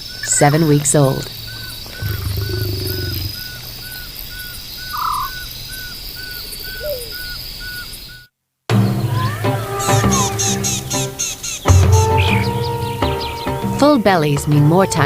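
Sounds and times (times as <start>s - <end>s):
high insect drone: 0.0s - 8.2s, 9.0s - 14.9s
short repeating insect call: 0.0s - 8.3s.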